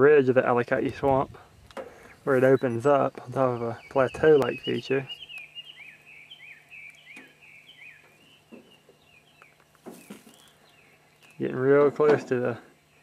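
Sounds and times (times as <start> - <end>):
songbird chirping: 0.0 - 13.0.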